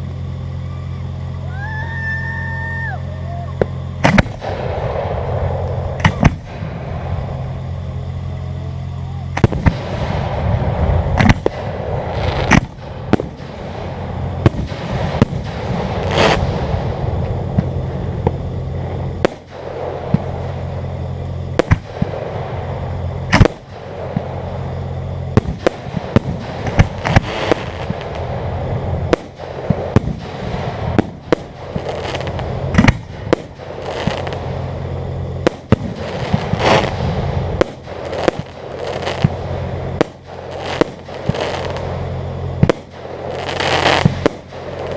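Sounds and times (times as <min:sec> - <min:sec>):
fireworks bursting: 0:00.0 - 0:44.9
fireworks crackling: 0:00.0 - 0:44.9
low hum: 0:00.0 - 0:44.9.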